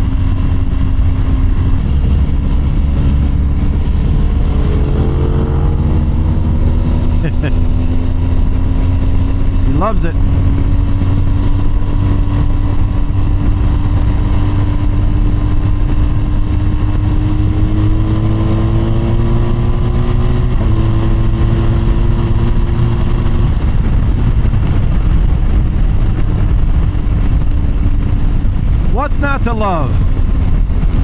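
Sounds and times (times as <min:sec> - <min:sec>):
motorcycle engine accelerating: 0:00.0 - 0:31.0
wind and road noise: 0:00.0 - 0:31.0.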